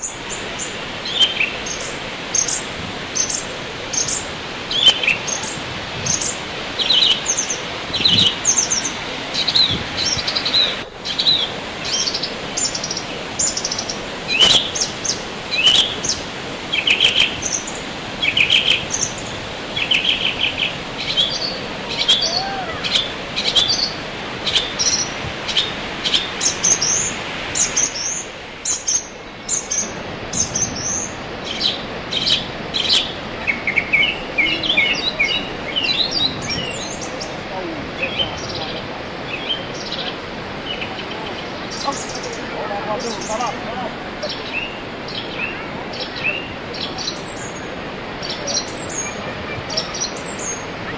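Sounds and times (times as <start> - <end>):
birds chirping: 0.0 - 50.9
steady rushing hiss: 0.0 - 50.9.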